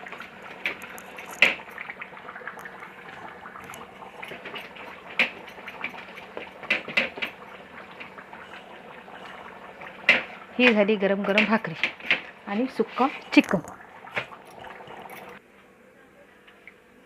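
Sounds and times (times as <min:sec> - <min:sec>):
kitchen utensils clinking: 0:02.6 - 0:15.4.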